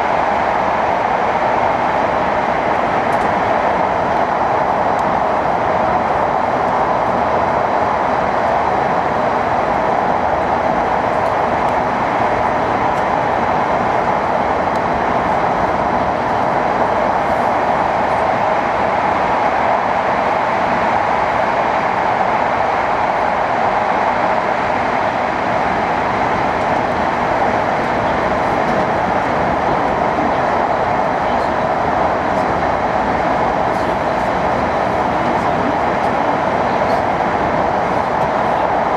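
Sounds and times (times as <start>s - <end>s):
train running noise: 0.0s - 38.9s.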